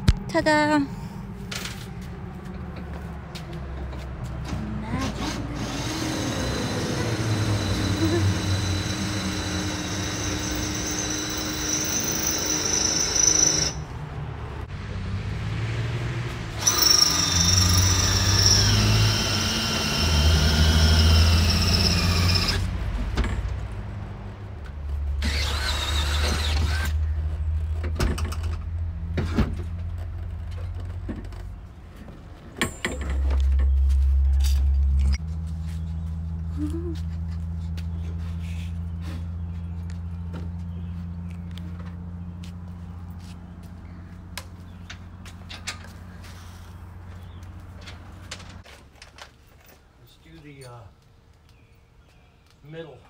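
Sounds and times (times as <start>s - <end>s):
power drill whining: 5.1s - 13.8s, 16.6s - 22.7s, 25.2s - 26.9s.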